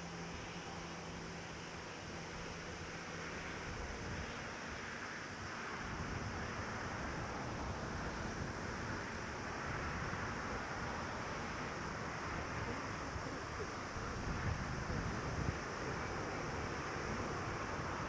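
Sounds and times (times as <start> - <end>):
wind on microphone: 5.8 - 18.0.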